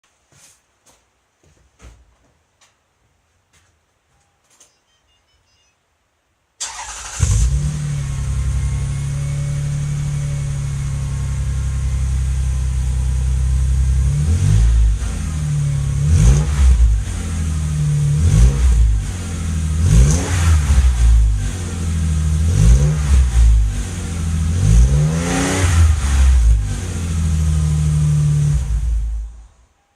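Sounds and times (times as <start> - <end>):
engine revving: 6.6 - 29.4
car engine starting and idling: 6.6 - 29.7.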